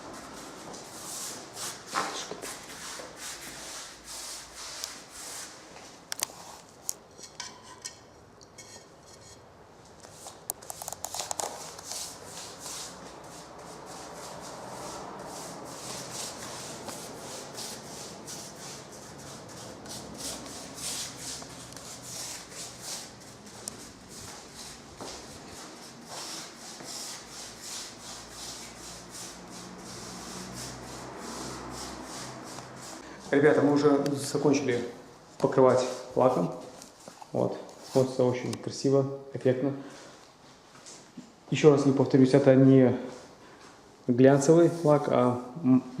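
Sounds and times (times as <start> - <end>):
paintbrush scrubbing strokes: 0.0 - 6.8, 10.1 - 33.5.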